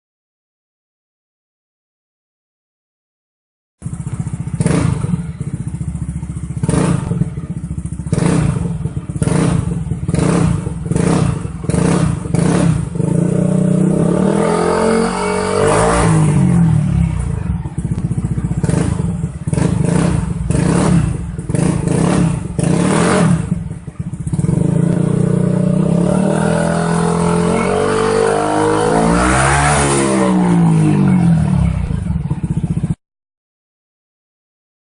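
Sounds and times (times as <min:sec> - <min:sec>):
scooter engine revving: 0:03.8 - 0:33.0.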